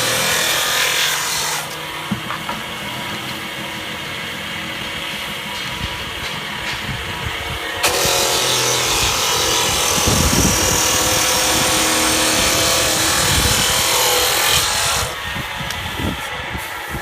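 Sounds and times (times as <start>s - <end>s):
machine cutting into wood: 7.8s - 15.2s.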